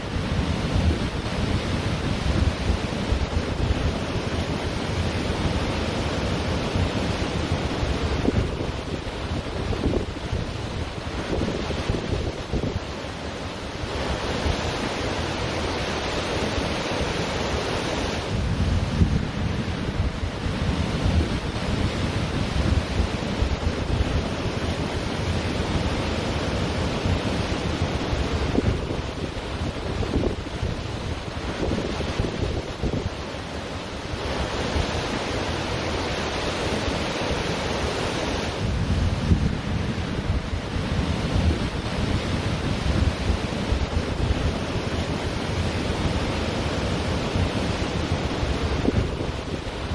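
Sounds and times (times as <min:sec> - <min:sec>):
ocean surf washing onto beach: 0:00.0 - 0:49.9
wind gusting on microphone: 0:00.0 - 0:49.9.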